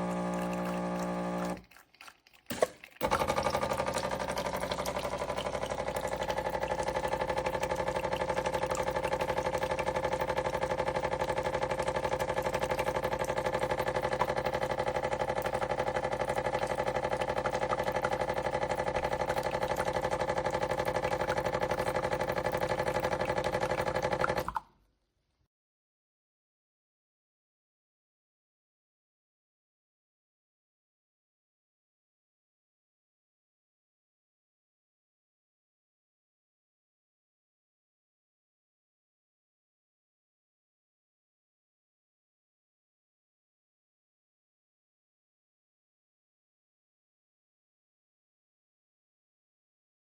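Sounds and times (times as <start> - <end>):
espresso machine humming and buzzing: 0.0 - 1.6, 3.0 - 24.4.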